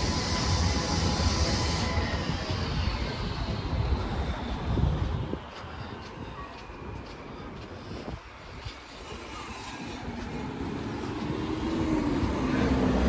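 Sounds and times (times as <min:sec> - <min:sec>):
street traffic: 0:00.0 - 0:13.0
vehicle engine approaching: 0:09.8 - 0:13.0.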